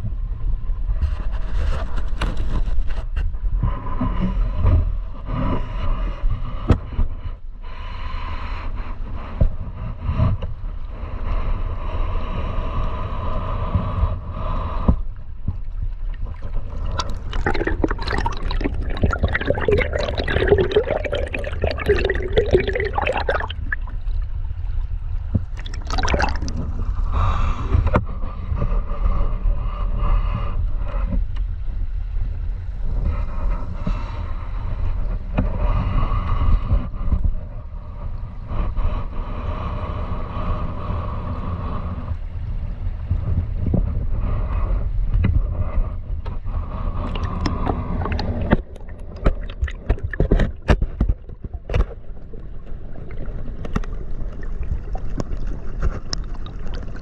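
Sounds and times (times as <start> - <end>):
river water gurgling: 16.2 - 24.4, 25.6 - 26.7.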